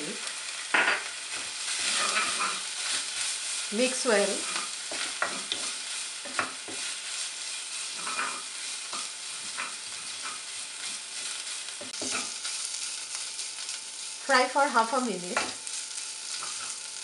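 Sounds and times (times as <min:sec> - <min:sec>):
paste sizzling in hot oil: 0:00.0 - 0:17.0
wooden spatula scraping pot: 0:01.7 - 0:03.4, 0:04.2 - 0:12.5.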